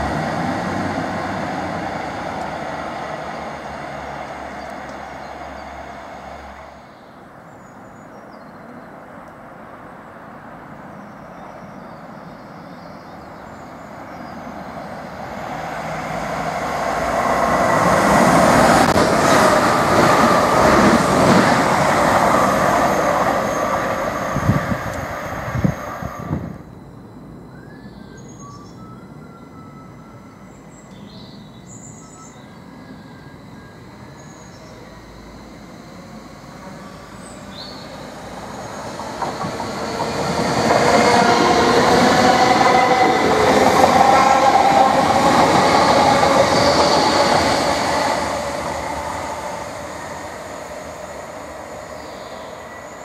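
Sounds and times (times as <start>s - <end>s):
electric train rushing past: 0.0s - 53.0s
birds chirping: 33.8s - 53.0s.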